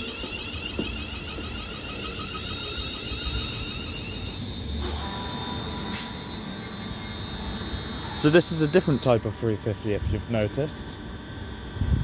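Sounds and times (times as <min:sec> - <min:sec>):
train traction motor whine: 0:00.0 - 0:12.0
short hiss: 0:05.9 - 0:06.3.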